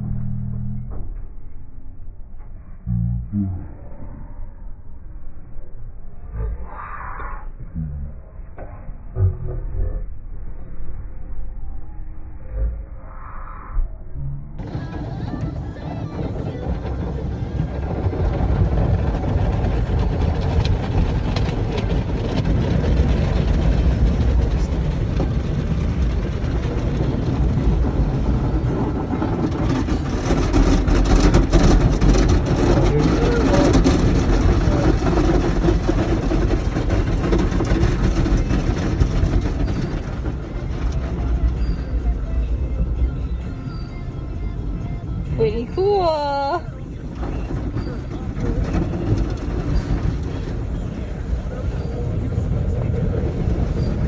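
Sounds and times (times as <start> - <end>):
car wash machinery rumbling: 14.6 - 54.0.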